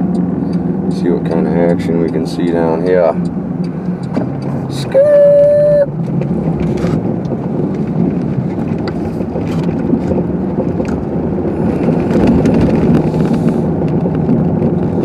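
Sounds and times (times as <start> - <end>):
car engine hum: 0.0 - 15.0
tyre and road noise: 0.0 - 15.0.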